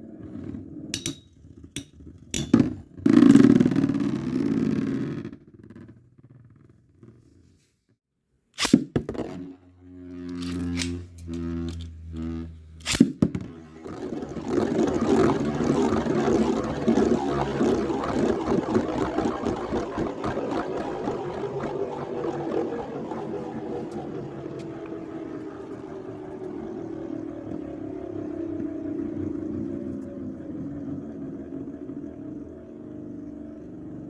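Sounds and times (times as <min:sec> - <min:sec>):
spinning tops launched with snap: 0:01.0 - 0:04.0, 0:08.6 - 0:12.2, 0:12.8 - 0:25.0
spinning tops whirring and scraping: 0:08.6 - 0:26.6.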